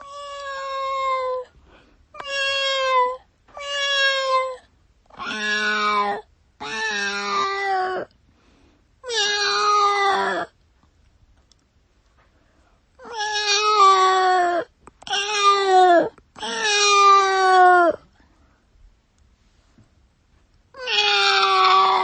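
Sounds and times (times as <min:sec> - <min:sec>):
cat meowing: 0:00.0 - 0:01.5, 0:02.2 - 0:04.6, 0:05.2 - 0:08.1, 0:09.0 - 0:10.5, 0:13.0 - 0:18.0, 0:20.8 - 0:22.0.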